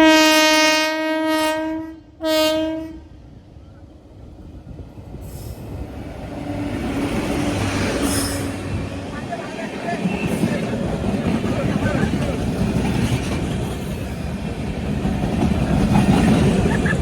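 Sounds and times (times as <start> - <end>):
locomotive horn blasts: 0.0 - 3.2
train running rumble and hiss: 3.2 - 17.0.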